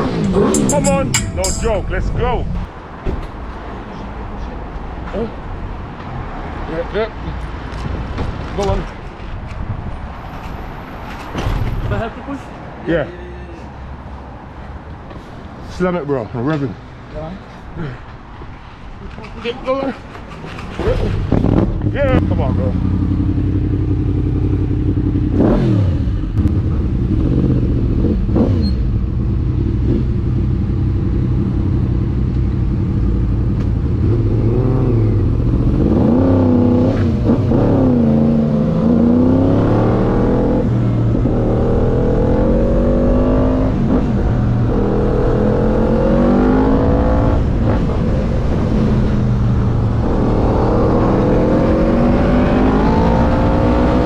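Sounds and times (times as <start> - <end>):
motorbike engine accelerating: 0.0 - 2.0.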